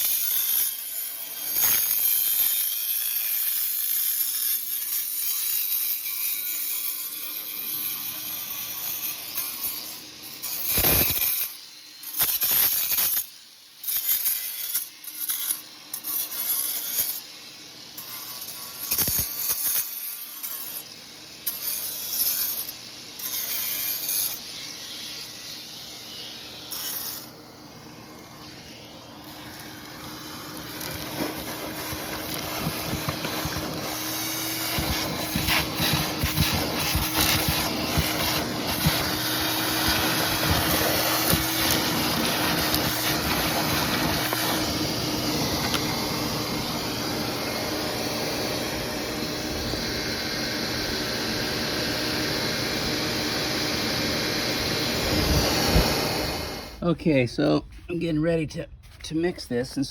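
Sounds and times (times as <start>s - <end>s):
angle grinder cutting concrete: 0.0s - 56.9s
motor hum: 22.4s - 56.8s.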